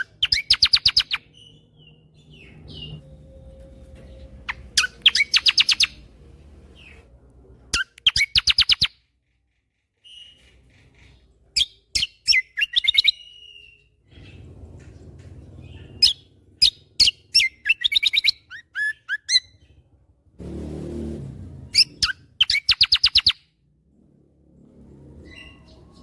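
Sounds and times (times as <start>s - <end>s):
songbird singing rapid bursts: 0.0s - 3.0s, 4.5s - 6.0s, 7.8s - 9.0s, 15.8s - 19.8s, 21.6s - 23.4s.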